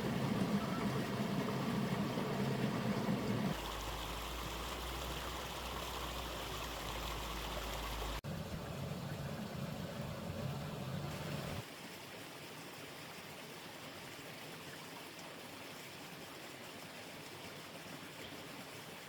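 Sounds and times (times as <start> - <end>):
low rumble: 0.0 - 3.6
running water hissing: 0.0 - 8.2.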